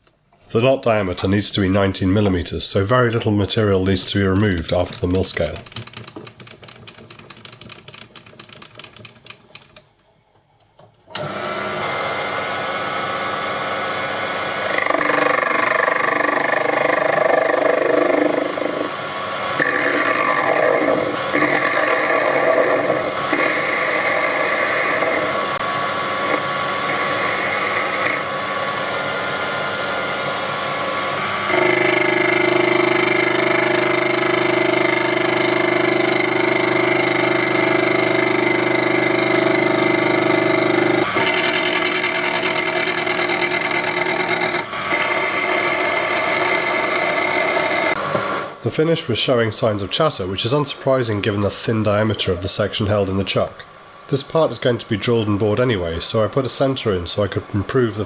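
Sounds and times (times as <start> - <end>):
rapid clicking: 4.4 - 9.8
lathe motor whining: 11.1 - 48.6
harsh metal cutting noise: 12.8 - 29.8, 31.2 - 48.6.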